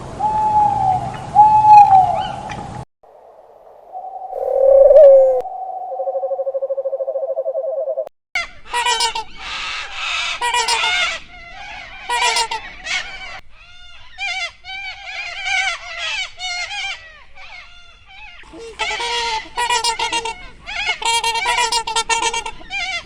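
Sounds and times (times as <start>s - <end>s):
poultry flock calling: 8.7s - 23.0s.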